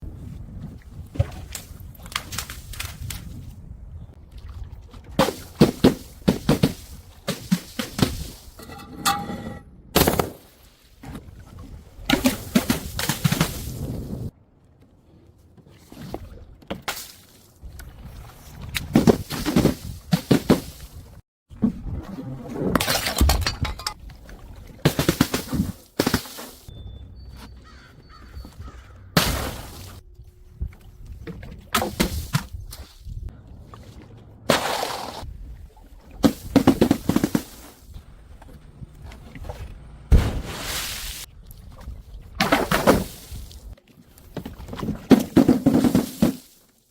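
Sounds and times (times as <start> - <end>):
things being crushed: 44.4 - 46.6.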